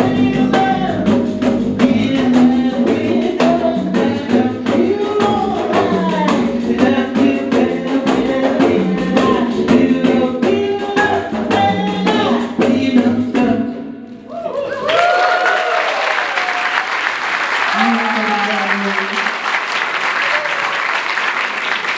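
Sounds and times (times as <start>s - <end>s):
frame drums playing fast: 0.0s - 13.7s
people singing: 0.0s - 13.9s
applause: 14.5s - 21.9s.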